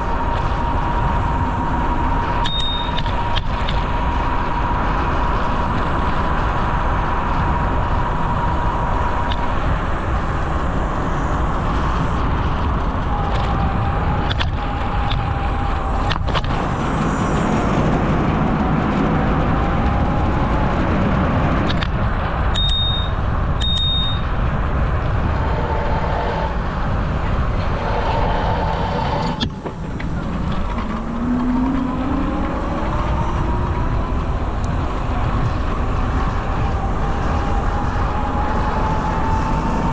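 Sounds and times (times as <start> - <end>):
wind rush from cycling: 0.0 - 39.9
bicycle bell ringing: 2.4 - 3.2, 22.6 - 24.4.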